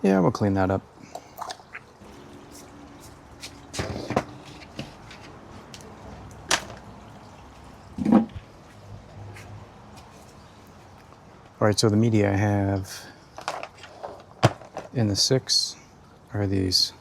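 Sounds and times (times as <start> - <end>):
plastic parts clacking and knocking: 6.5 - 6.8, 13.4 - 15.0
parts rattling: 13.3 - 15.0.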